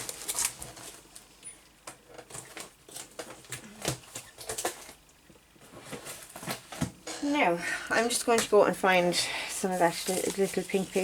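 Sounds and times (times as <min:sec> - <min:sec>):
paper rustling and crinkling: 0:00.0 - 0:01.3, 0:09.6 - 0:11.0.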